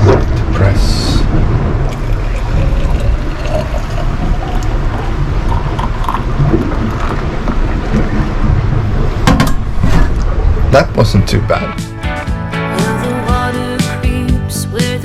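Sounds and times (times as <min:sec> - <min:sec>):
low rumble of sailing yacht: 0:00.0 - 0:11.7
hot water pouring into thermos: 0:01.9 - 0:07.6.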